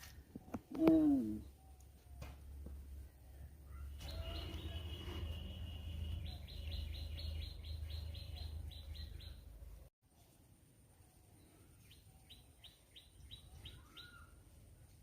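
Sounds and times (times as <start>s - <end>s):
bird calling: 3.6s - 9.5s.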